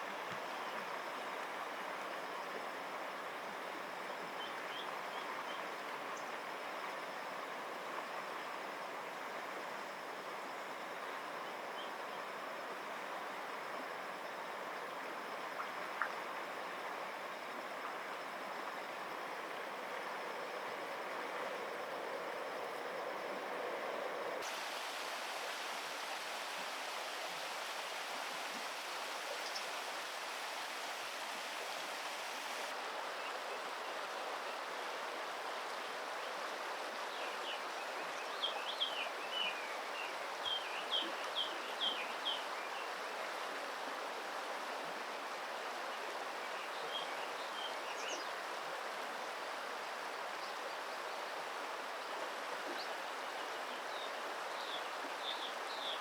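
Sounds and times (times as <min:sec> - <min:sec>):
stream water rushing: 0:23.3 - 0:56.0.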